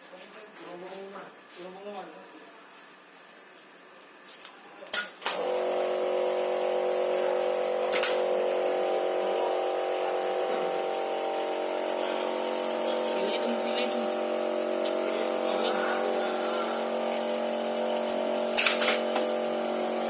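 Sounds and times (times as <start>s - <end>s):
machine motor humming: 5.3s - 20.0s.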